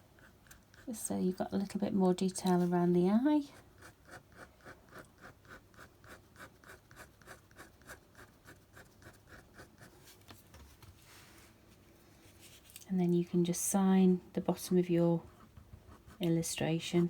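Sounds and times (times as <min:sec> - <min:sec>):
pen scratching on paper: 0:03.8 - 0:10.0.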